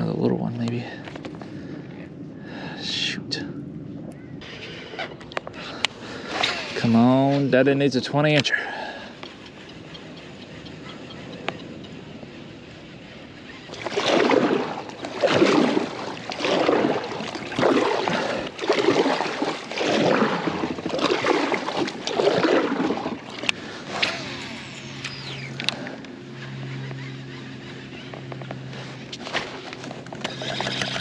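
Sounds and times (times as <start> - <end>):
paddle strokes swooshing in water: 13.7 - 24.6.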